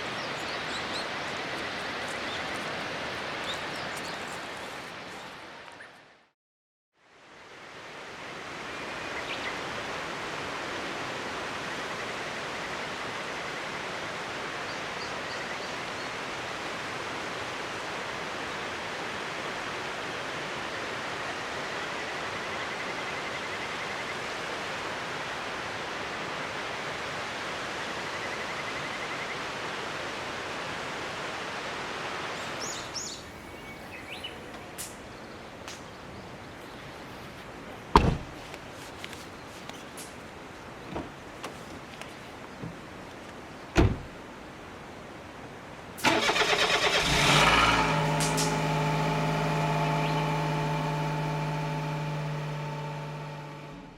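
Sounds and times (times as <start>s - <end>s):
bird chirps: 0.0s - 2.7s, 32.4s - 36.0s
river water rushing: 0.0s - 5.7s, 7.2s - 37.0s, 38.6s - 53.9s.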